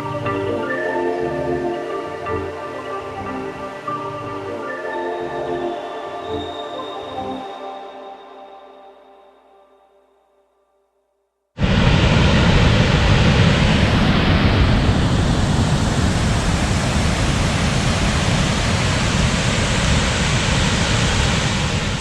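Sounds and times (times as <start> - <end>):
waterfall rushing: 11.6 - 22.0.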